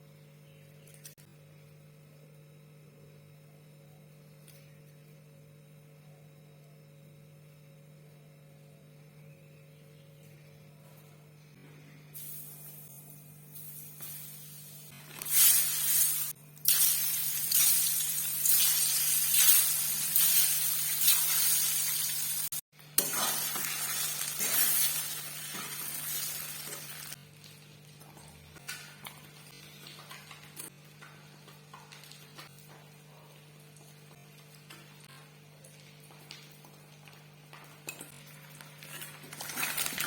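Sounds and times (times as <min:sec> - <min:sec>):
food sizzling in hot oil: 0:13.6 - 0:27.2.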